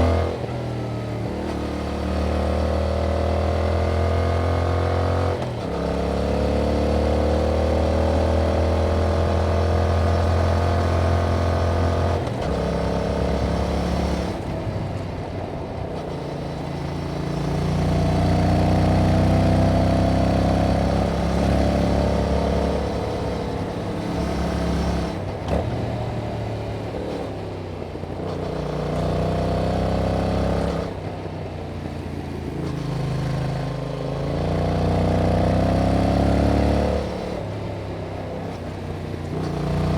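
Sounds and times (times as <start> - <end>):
motorcycle engine revving: 16.0 - 31.2, 32.5 - 38.0, 39.2 - 39.9.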